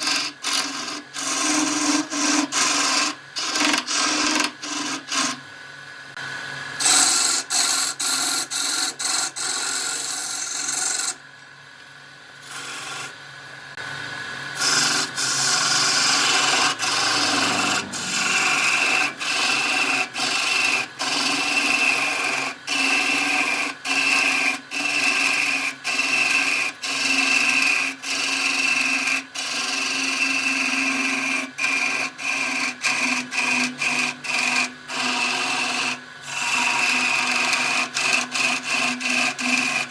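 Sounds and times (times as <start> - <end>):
tool scraping spinning wood: 0.0 - 5.4, 6.8 - 11.3, 12.4 - 13.2, 14.6 - 39.9
steady high tone: 16.8 - 19.2.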